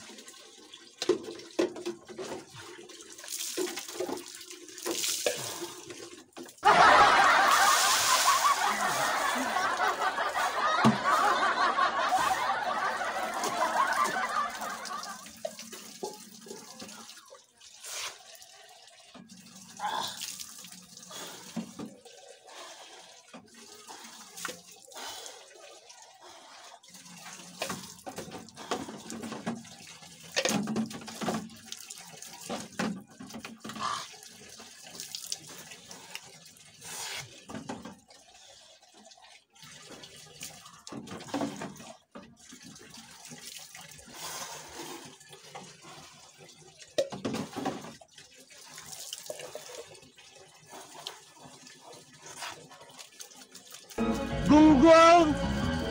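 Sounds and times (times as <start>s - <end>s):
splashes and drips of bathing: 0.0s - 54.0s
water splashing on concrete floor: 0.9s - 26.6s, 27.2s - 38.1s.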